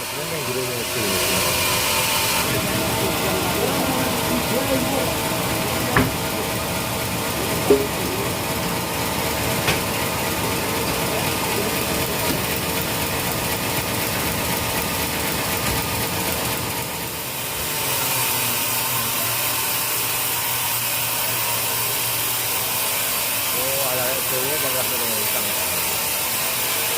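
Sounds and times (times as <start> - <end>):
sawmill machinery running: 0.0 - 26.9
sharp knocks: 5.9 - 6.3, 7.6 - 8.2.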